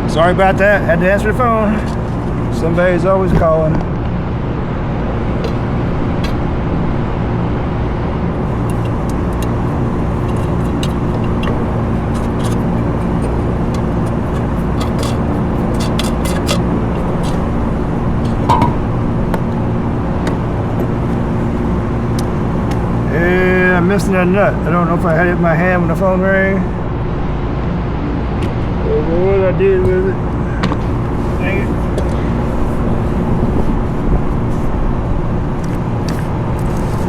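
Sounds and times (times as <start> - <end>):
machinery droning: 0.0 - 37.0
metal parts and tools clicking: 8.6 - 17.5.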